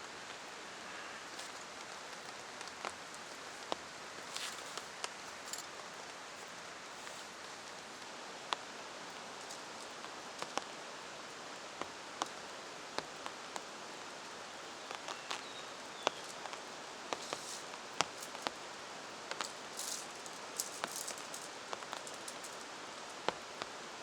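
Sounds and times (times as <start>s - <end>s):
rain hiss: 0.0s - 24.0s.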